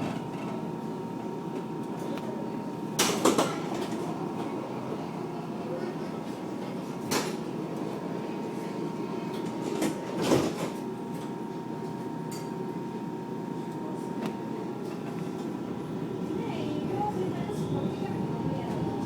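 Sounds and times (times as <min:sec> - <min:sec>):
tram rumbling on rails: 0:15.0 - 0:19.0.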